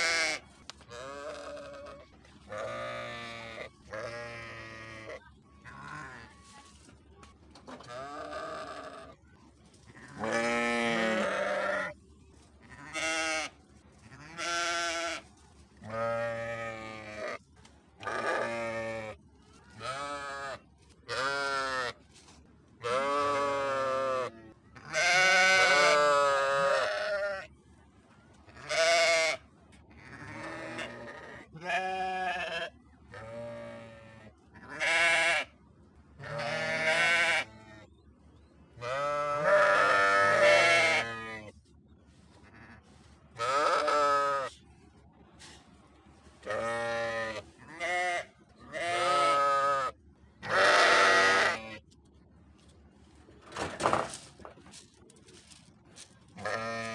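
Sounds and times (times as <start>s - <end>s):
sheep bleating: 0.0s - 6.3s, 7.8s - 9.2s, 10.1s - 12.0s, 22.8s - 27.5s, 28.6s - 29.4s, 30.0s - 35.5s, 36.2s - 37.6s, 38.8s - 41.4s, 43.4s - 44.5s, 46.5s - 51.8s, 56.4s - 56.9s.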